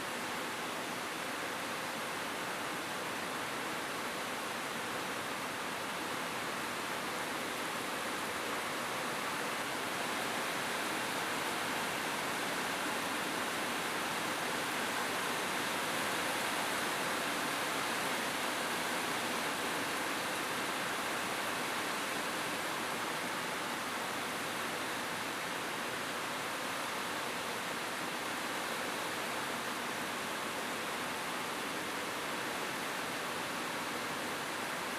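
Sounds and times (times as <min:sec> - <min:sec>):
rain on a roof: 0:00.0 - 0:34.9.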